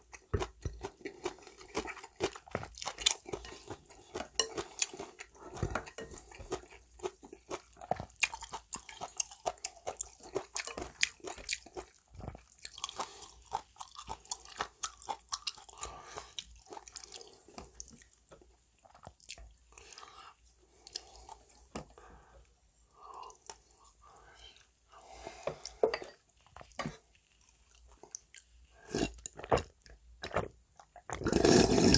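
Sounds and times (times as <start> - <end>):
chewing noodles: 0.0 - 21.7.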